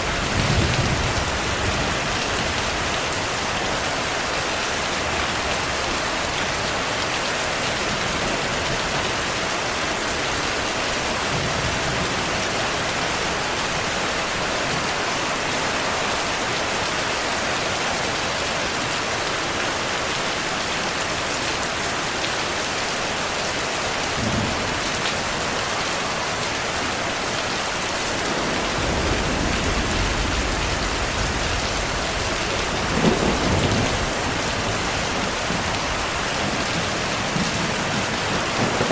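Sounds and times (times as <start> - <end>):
low rumble of thunder: 0.0 - 3.7, 24.1 - 25.4, 28.0 - 38.9
heavy rain falling: 0.0 - 38.9
sharp thunder clap: 28.2 - 36.0.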